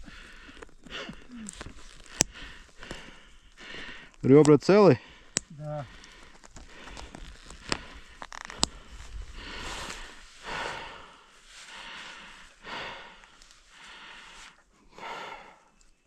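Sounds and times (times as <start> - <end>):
person breathing heavily: 0.0 - 4.2, 4.9 - 15.8
sharp clicks: 0.4 - 4.6, 5.2 - 8.9.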